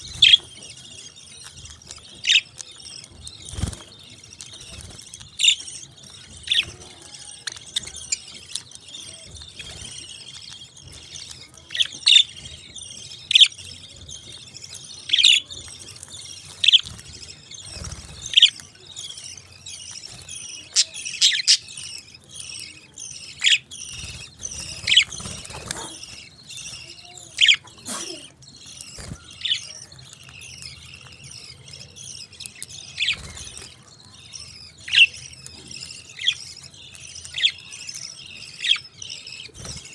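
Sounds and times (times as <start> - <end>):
parakeets chattering: 0.0 - 39.9.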